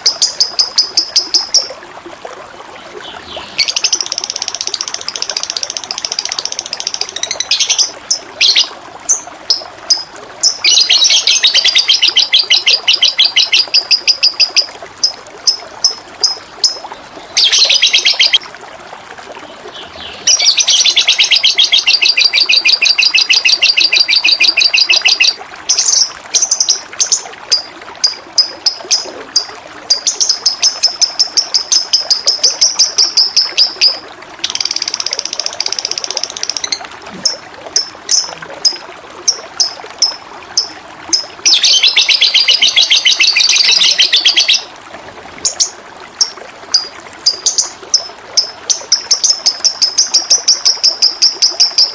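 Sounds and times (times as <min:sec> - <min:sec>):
trickle of running water: 0:00.0 - 0:51.9
songbird trilling and chirping: 0:03.3 - 0:09.2, 0:09.9 - 0:14.5, 0:17.4 - 0:18.4, 0:20.1 - 0:26.7, 0:41.5 - 0:44.7.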